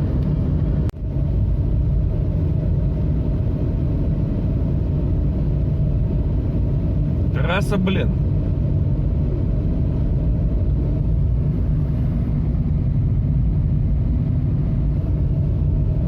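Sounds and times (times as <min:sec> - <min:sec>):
vehicle cabin road rumble: 0:00.0 - 0:16.0.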